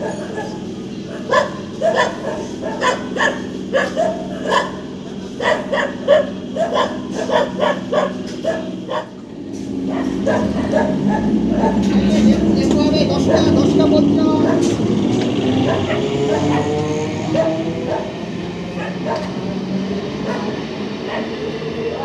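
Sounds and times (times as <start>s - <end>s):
dog barking: 0.0s - 9.2s, 9.8s - 12.2s, 13.2s - 13.7s, 14.4s - 14.8s, 15.6s - 19.4s, 20.2s - 22.0s.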